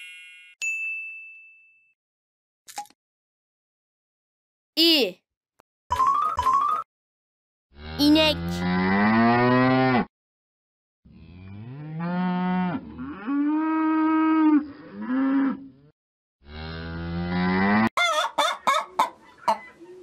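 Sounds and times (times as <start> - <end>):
cow mooing: 7.8 - 10.1, 11.1 - 17.9.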